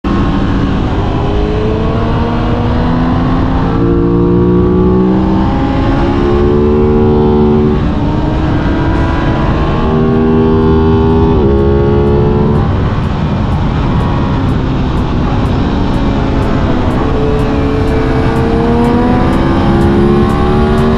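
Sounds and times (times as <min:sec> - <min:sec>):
motorcycle engine shifting gears: 0:00.0 - 0:20.9
wind rushing: 0:04.7 - 0:20.9.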